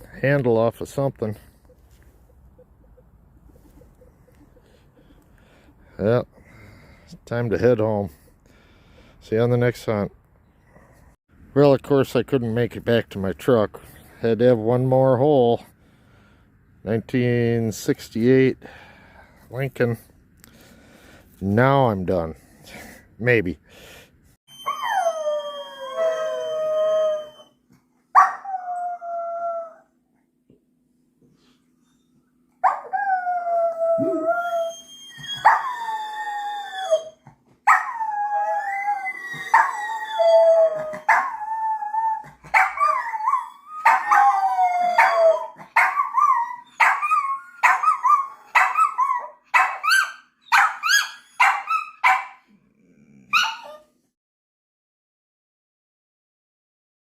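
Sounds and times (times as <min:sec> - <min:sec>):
dog howling and yipping: 0:24.5 - 0:27.5, 0:28.2 - 0:29.9, 0:32.6 - 0:52.4, 0:53.3 - 0:53.8.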